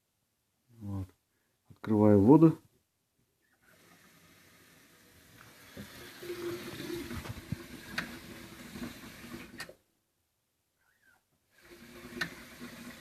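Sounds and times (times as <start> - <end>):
water running through heater: 3.7 - 9.8, 11.5 - 13.0.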